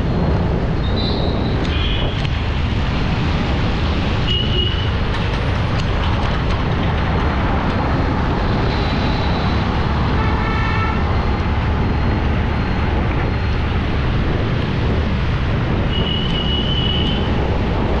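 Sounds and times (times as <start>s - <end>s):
road traffic noise: 0.0s - 18.0s
vehicle horn: 10.1s - 11.0s.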